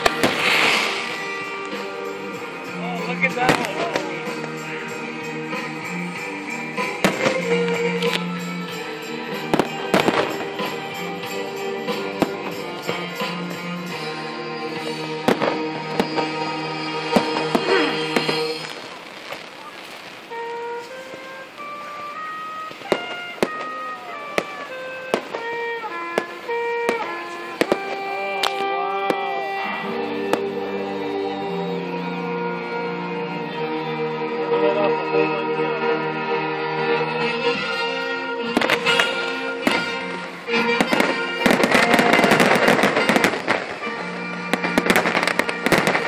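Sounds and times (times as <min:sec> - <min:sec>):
firework shells bursting: 0:00.0 - 0:02.6, 0:05.6 - 0:13.5, 0:38.4 - 0:46.0
fireworks bursting and crackling: 0:00.0 - 0:32.8, 0:36.8 - 0:46.0
music with held notes: 0:00.0 - 0:46.0.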